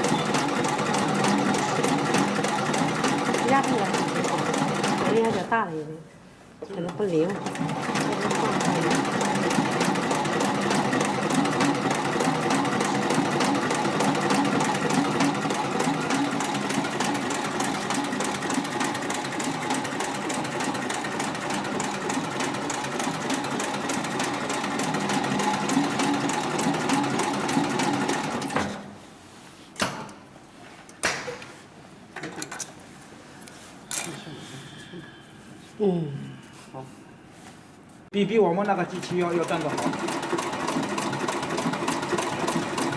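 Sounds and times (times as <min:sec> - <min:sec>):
industrial sewing machine running: 0:00.0 - 0:05.5, 0:07.3 - 0:28.8, 0:38.9 - 0:42.9.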